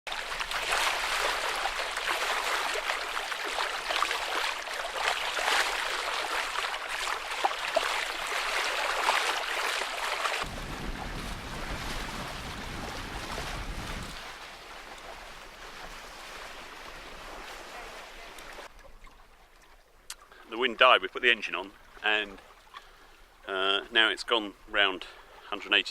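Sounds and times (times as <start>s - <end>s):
water rushing past boat hull: 0.1s - 20.1s.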